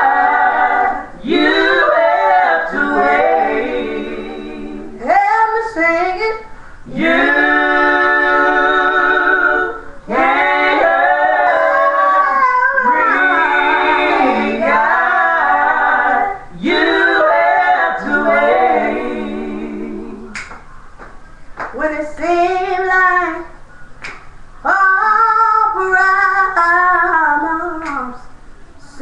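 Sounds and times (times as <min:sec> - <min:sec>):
woman singing unaccompanied: 0:21.8 - 0:23.6, 0:24.6 - 0:29.0.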